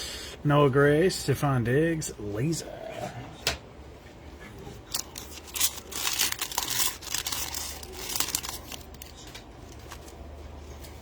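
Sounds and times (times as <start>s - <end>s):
foil wrapper crinkling and tearing: 4.9s - 10.2s.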